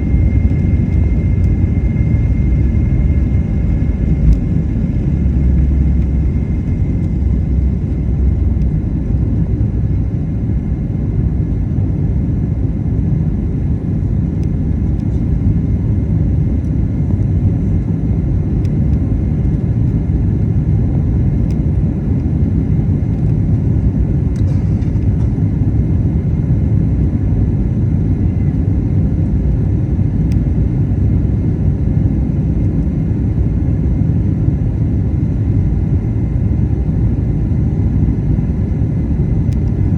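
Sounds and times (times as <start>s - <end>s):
jet engines roaring: 0.0s - 20.8s.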